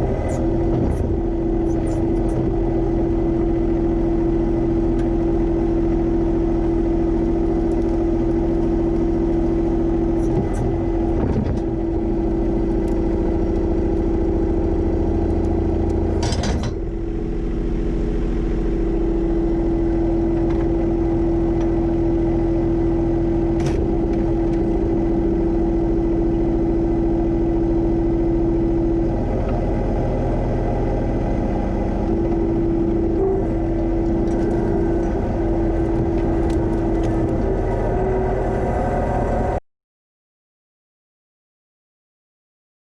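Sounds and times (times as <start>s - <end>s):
tractor diesel engine running: 0.0s - 39.6s.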